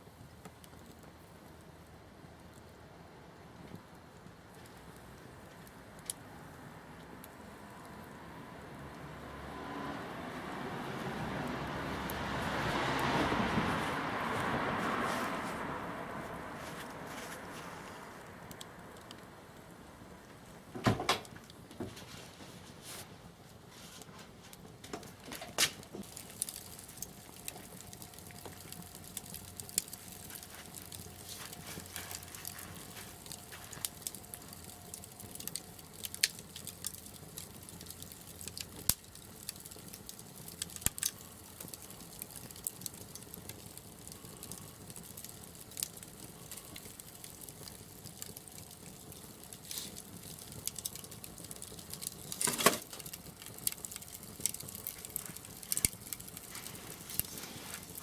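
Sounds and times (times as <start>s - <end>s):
loud crack of fire: 0.0s - 58.0s
wood fire crackling: 0.0s - 58.0s.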